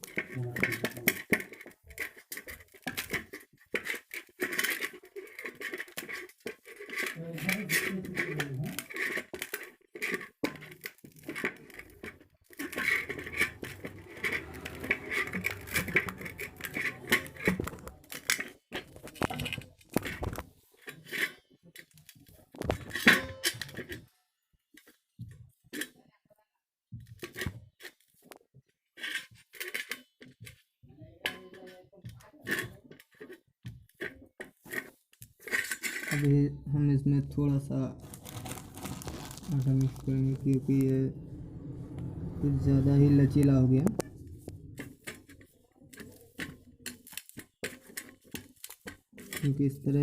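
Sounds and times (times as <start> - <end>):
scraping and tapping: 0.0 - 24.1, 27.0 - 36.5, 43.3 - 50.0
hands kneading dough: 37.4 - 41.0.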